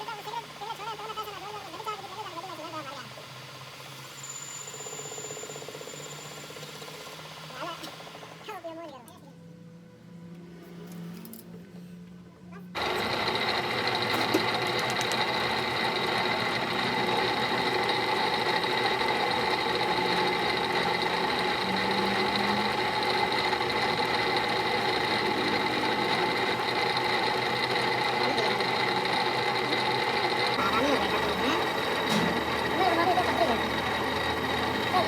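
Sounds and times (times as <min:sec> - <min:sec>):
workshop machine whirring: 0:00.0 - 0:35.0.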